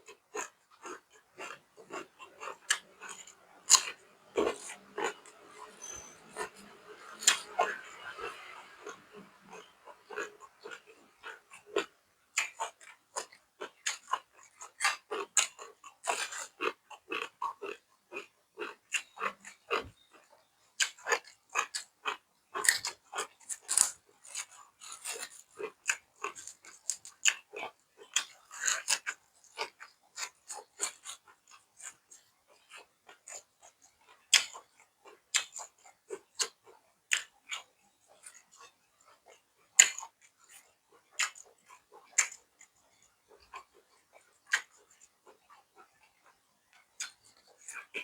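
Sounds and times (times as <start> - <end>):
person chewing and lip-smacking: 0.1 - 19.6, 20.8 - 46.0, 46.9 - 48.0.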